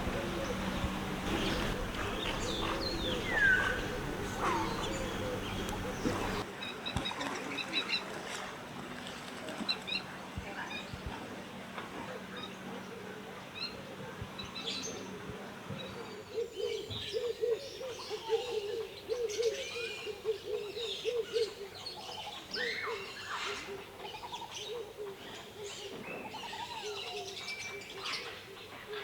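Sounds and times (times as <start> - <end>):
bird low hooting notes: 0.0 - 6.4
birds chirping and whistling: 0.0 - 6.4.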